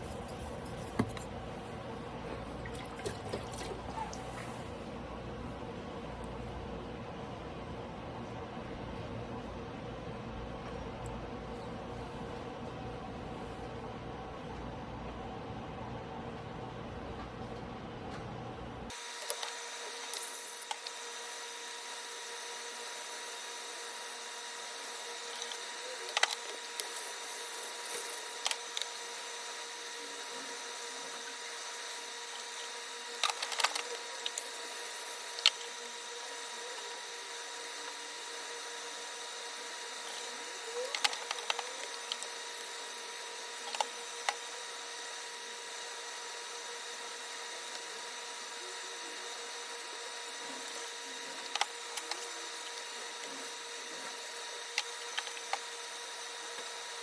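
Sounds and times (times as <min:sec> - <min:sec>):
steady background hum: 0:00.0 - 0:57.0.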